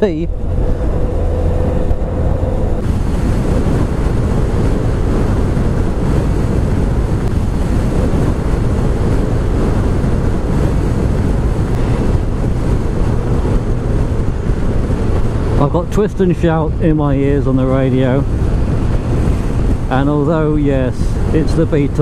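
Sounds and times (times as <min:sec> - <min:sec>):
motorcycle engine: 0:00.0 - 0:15.8
road noise: 0:00.0 - 0:22.0
wind buffeting microphone: 0:00.0 - 0:22.0.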